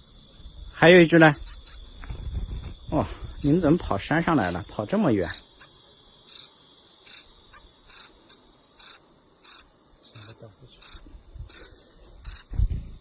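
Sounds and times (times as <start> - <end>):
insects buzzing and chirping: 0.0 - 13.0
low thump: 12.5 - 13.0.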